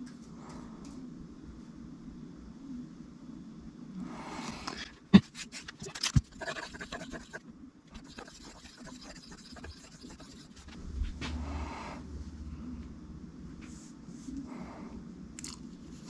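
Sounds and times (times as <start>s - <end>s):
knife scraping on stone: 5.2s - 7.4s, 8.0s - 10.8s
low rumble: 10.6s - 16.0s.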